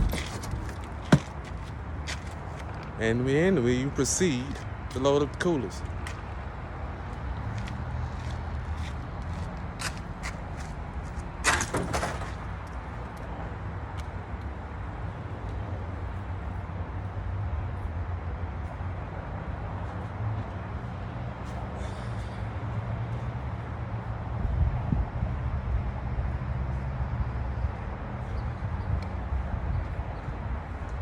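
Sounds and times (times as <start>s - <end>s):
cooler scraping: 0.0s - 1.4s
coolers clattering: 0.0s - 1.5s, 11.4s - 12.5s.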